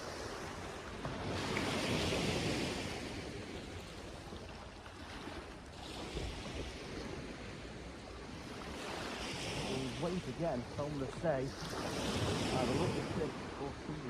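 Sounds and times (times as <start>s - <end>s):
small surf breaking: 8.3s - 14.0s.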